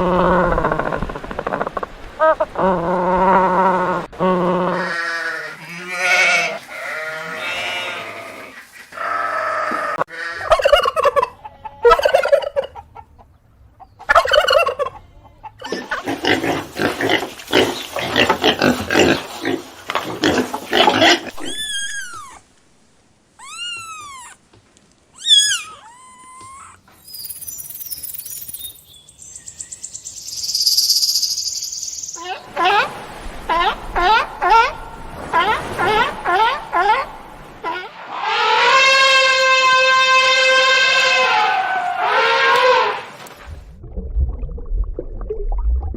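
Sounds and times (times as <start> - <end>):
high arching chirps: 25.2 - 32.4.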